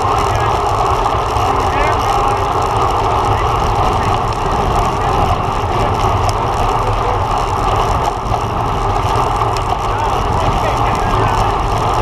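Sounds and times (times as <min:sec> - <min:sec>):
bike tyre road rumble: 0:00.0 - 0:12.0
wind rushing over microphone: 0:00.0 - 0:12.0.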